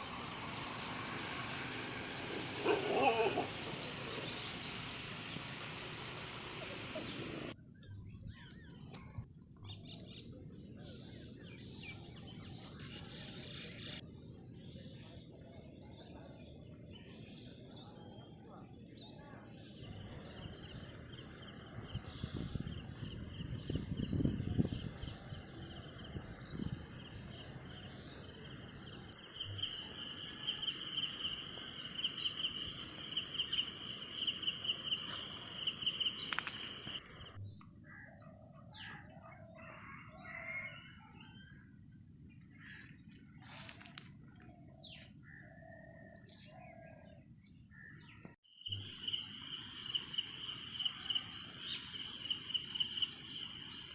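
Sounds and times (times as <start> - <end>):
birds calling and chirping: 0.0 - 14.0
insects chorus: 0.0 - 38.1, 38.7 - 41.5, 42.1 - 53.9.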